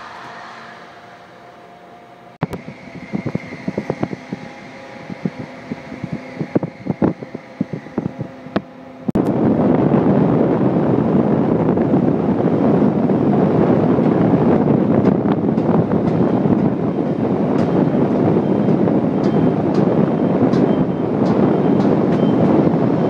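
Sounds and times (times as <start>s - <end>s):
train running hum: 0.0s - 23.0s
wind rushing on microphone: 2.4s - 23.0s
train wheels clicking on track: 15.0s - 22.6s.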